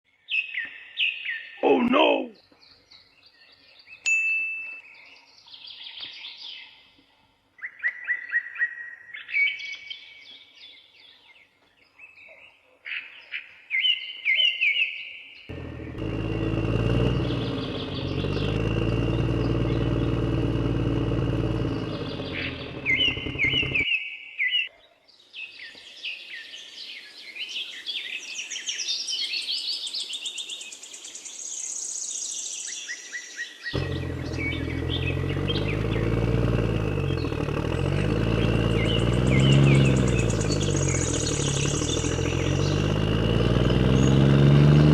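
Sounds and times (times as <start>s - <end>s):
birds chirping: 1.3s - 4.0s, 15.4s - 24.0s, 33.5s - 44.9s
small engine running: 15.5s - 23.9s, 33.8s - 44.9s.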